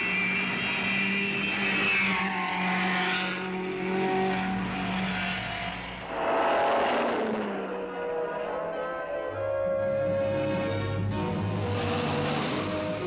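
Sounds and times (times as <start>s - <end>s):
rally car engines running hard: 0.0s - 8.4s, 10.9s - 13.0s
car rushing by: 4.0s - 8.0s.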